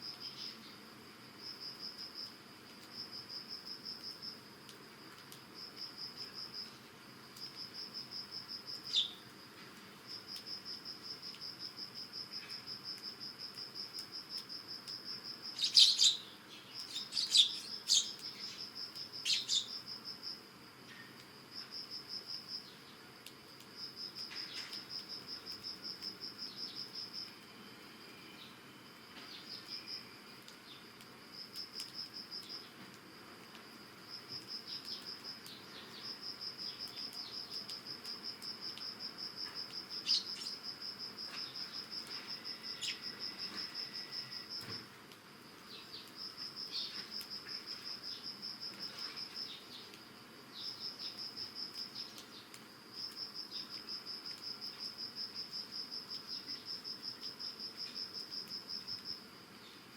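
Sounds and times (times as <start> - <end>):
insects trilling: 0.0 - 59.9
sparrows chirping: 8.9 - 9.2, 15.5 - 19.8, 40.0 - 40.6, 42.8 - 43.1.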